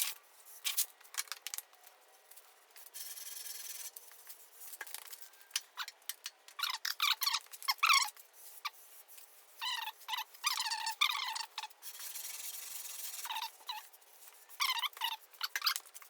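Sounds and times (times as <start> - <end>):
sandpaper squeaking: 9.6 - 16.0.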